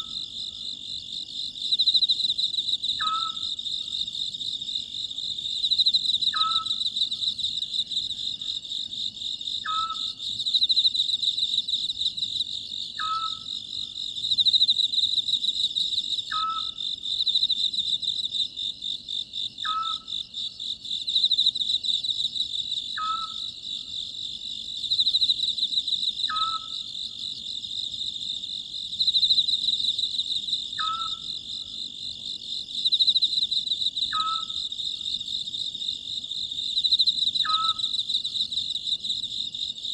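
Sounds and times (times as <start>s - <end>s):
crickets chirping: 0.0s - 39.9s
owl calling: 3.0s - 3.5s, 6.3s - 6.8s, 9.6s - 10.1s, 13.0s - 13.5s, 16.3s - 16.8s, 19.6s - 20.1s, 23.0s - 23.5s, 26.3s - 26.8s, 30.8s - 31.3s, 34.1s - 34.6s, 37.4s - 37.9s.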